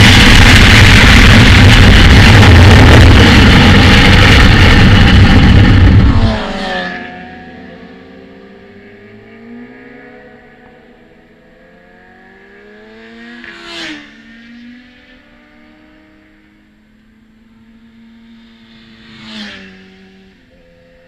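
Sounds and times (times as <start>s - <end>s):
wind noise: 0.0s - 6.8s
loud motorcycle engine: 0.0s - 21.0s
faint distant motorcycle engines: 6.3s - 21.0s.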